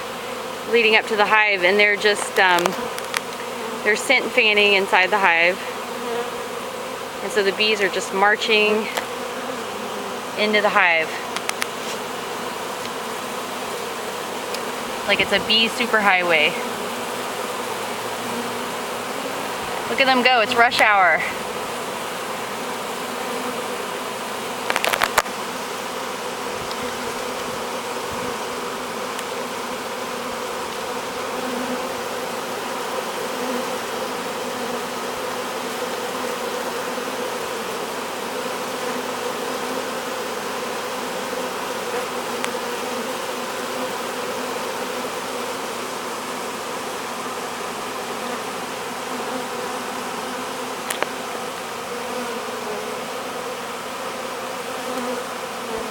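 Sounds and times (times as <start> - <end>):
bee swarm buzzing: 0.0 - 55.9.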